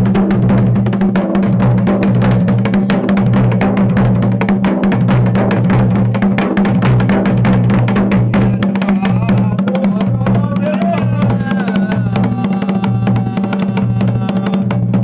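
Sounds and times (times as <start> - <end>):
drums playing fast rhythm: 0.0 - 15.0
person's voice: 8.3 - 14.6.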